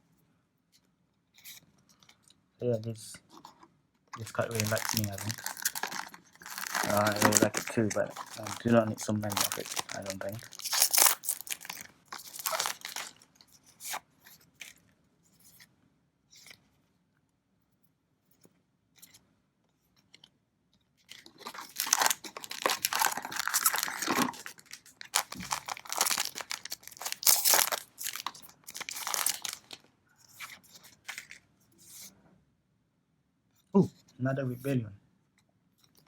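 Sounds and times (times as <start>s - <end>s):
wrapper tearing and crinkling: 4.2s - 14.0s, 21.1s - 31.4s.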